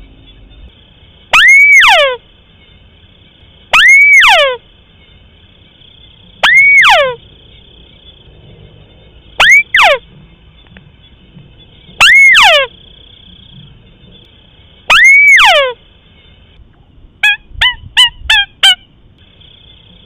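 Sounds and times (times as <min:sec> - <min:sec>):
bird call swooping up and down: 0:01.4 - 0:02.2, 0:03.8 - 0:04.6, 0:06.4 - 0:07.2, 0:09.4 - 0:10.0, 0:12.0 - 0:12.7, 0:14.9 - 0:15.8.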